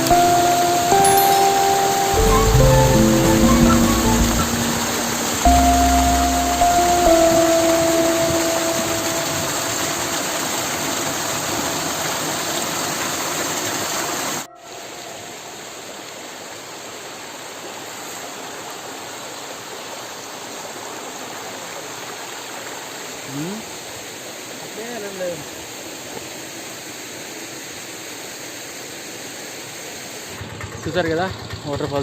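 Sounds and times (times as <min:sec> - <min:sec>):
waterfall rushing: 0:00.0 - 0:20.1.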